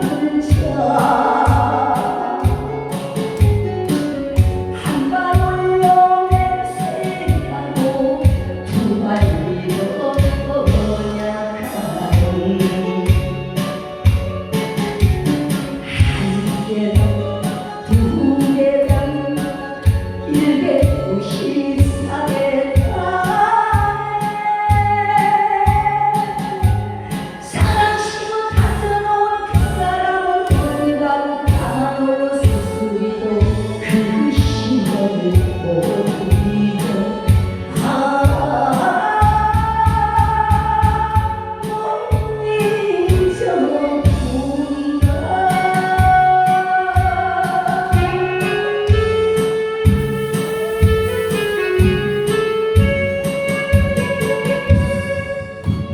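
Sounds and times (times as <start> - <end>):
band accompaniment: 0.0 - 28.9, 33.4 - 42.4, 45.0 - 55.9
person singing live: 0.0 - 55.9
steady drum beat: 30.5 - 30.8, 48.9 - 55.9.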